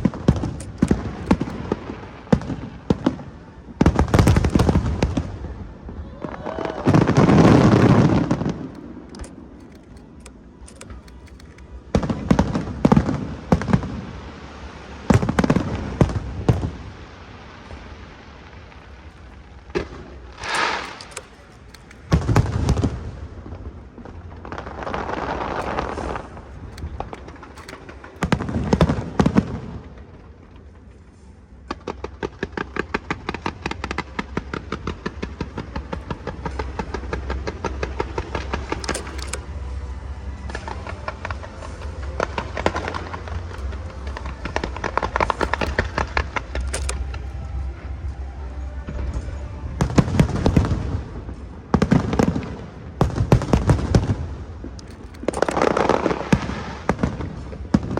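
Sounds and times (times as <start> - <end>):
fireworks booming: 0.0 - 10.2, 11.6 - 30.4, 48.9 - 57.9
fireworks crackling: 0.0 - 57.9.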